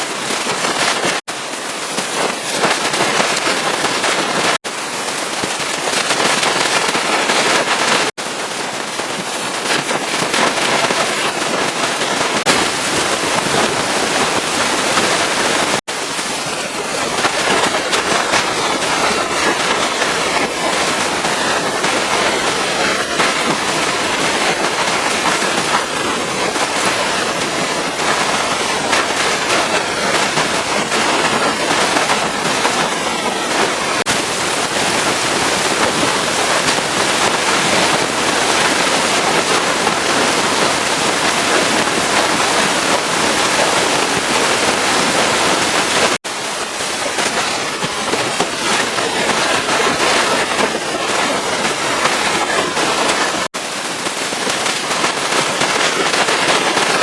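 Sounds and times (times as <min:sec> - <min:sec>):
pressure washer spraying water: 0:12.0 - 0:53.5.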